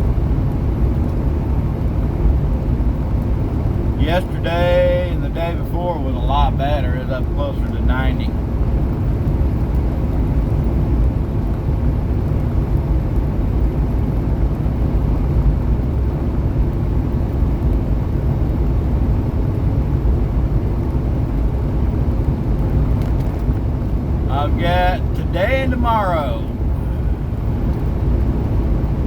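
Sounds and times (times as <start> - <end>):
truck engine and road drone: 0.0 - 29.0.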